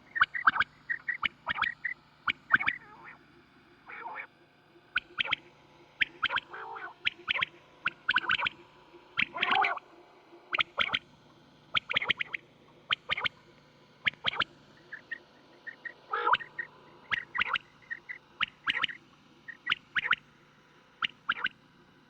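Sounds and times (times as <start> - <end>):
steady low hum: 0.0 - 22.0
quail calling: 0.1 - 3.2, 5.0 - 5.4, 6.0 - 8.6, 9.2 - 9.8, 10.5 - 11.0, 11.7 - 13.3, 14.0 - 20.2, 21.0 - 21.6.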